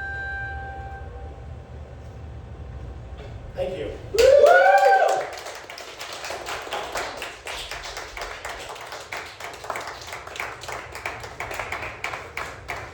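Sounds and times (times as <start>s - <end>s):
small audience clapping: 4.1s - 12.9s.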